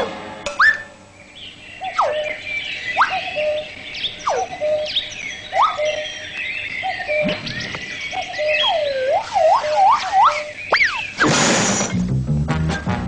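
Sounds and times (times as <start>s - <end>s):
swooping whistles: 0.5s - 1.0s, 1.8s - 6.2s, 7.0s - 11.3s
bird-like chirps: 0.5s - 12.0s.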